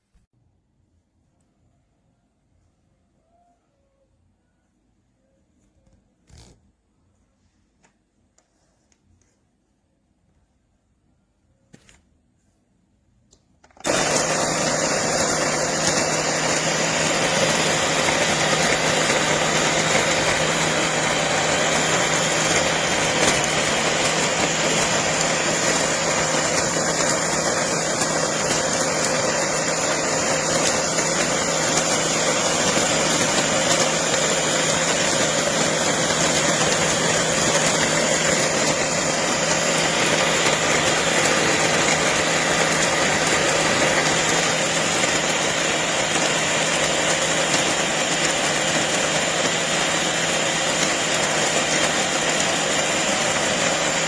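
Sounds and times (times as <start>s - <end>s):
coffee grinder motor whirring: 6.3s - 6.6s, 13.8s - 54.0s.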